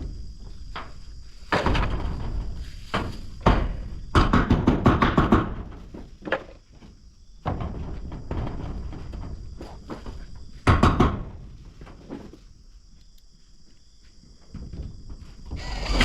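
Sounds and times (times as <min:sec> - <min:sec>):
knocks and thuds: 0:00.0 - 0:12.3
rough scraping: 0:15.6 - 0:16.0.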